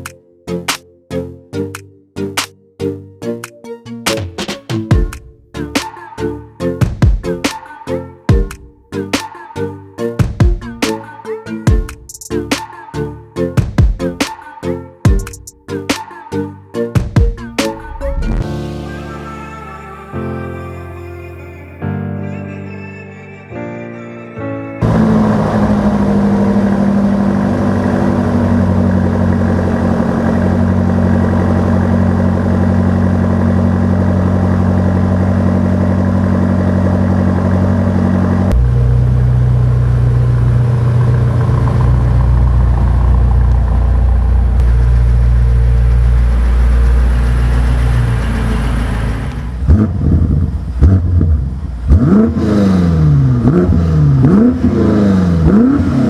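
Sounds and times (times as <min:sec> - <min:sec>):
car engine idling: 0:24.8 - 0:56.0
engine throttle blips: 0:24.8 - 0:56.0.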